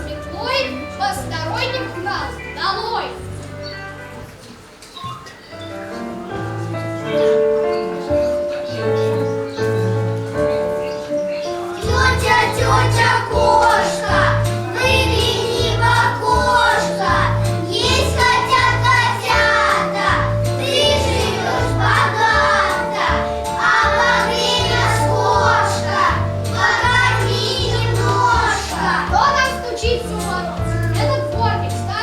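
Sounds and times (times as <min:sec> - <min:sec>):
instrumental accompaniment with bass: 0:00.0 - 0:04.5, 0:05.7 - 0:32.0
children singing: 0:11.6 - 0:31.1.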